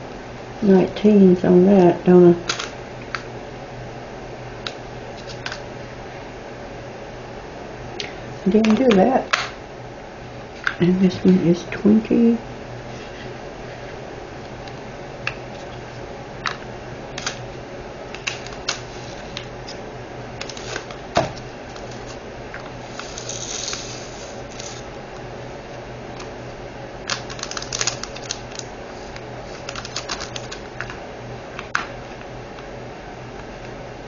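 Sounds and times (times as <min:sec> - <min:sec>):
small beads rattling: 0:23.0 - 0:24.8.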